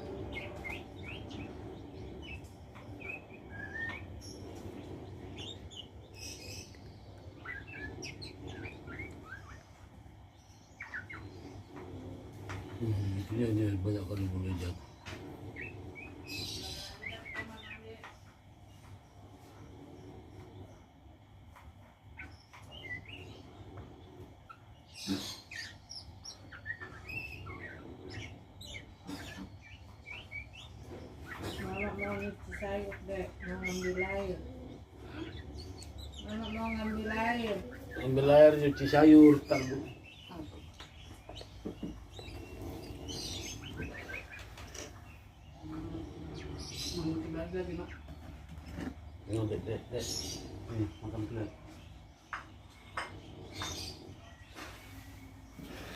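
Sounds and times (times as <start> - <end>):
bird whistles and chirps: 0.0 - 9.9
low steady background hum: 0.0 - 55.9.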